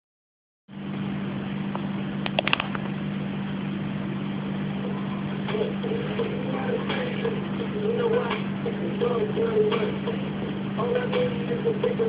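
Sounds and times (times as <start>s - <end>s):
vehicle engine humming: 0.7s - 12.0s
sharp clicks: 2.2s - 2.8s.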